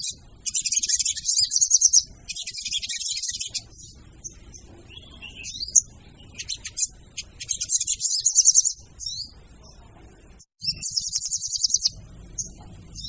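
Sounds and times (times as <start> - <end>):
bird chirps and trill: 0.0 - 9.8, 10.4 - 13.0.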